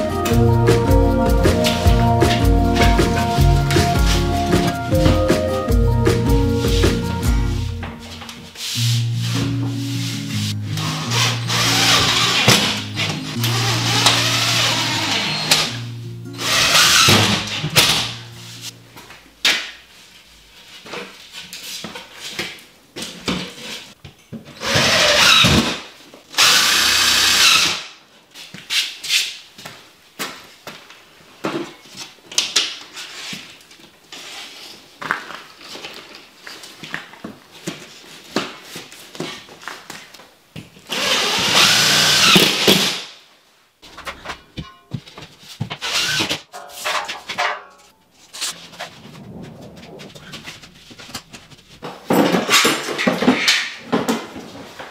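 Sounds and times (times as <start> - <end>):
music with low held notes: 0.0 - 19.1
power drill bursts: 11.0 - 12.7, 13.4 - 15.8, 16.4 - 17.4, 24.6 - 25.6, 26.4 - 27.9, 40.9 - 43.0, 45.8 - 46.4
knocks and clatters: 43.8 - 45.8, 46.4 - 54.9.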